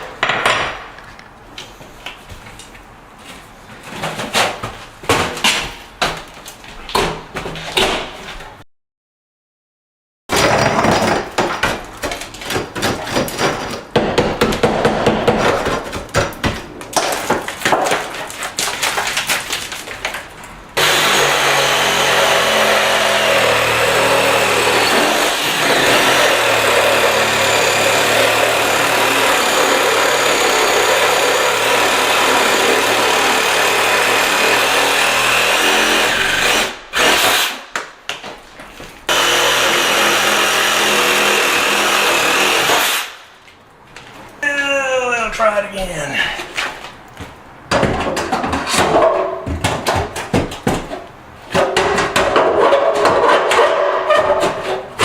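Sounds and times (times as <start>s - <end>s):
knocking and chipping at tile: 10.4s - 19.2s, 47.7s - 54.8s
power tool running: 20.8s - 37.5s, 39.1s - 43.2s.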